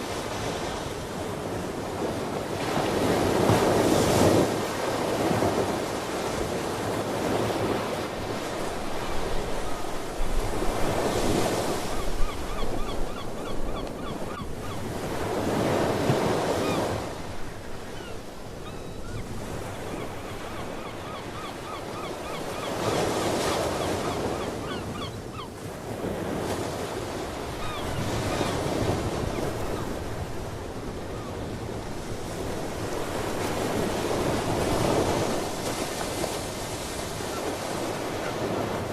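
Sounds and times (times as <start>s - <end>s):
ocean waves: 0.0s - 38.9s
sea birds calling: 8.9s - 25.6s, 27.1s - 30.2s.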